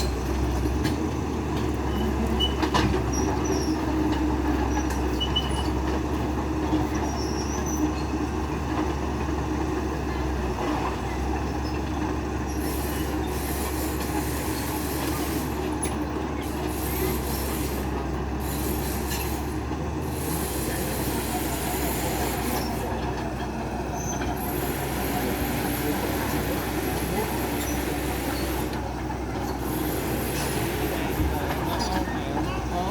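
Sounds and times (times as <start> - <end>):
engine humming: 0.0 - 32.9
faint short squeaks: 1.8 - 4.0, 4.7 - 5.8, 7.0 - 8.2.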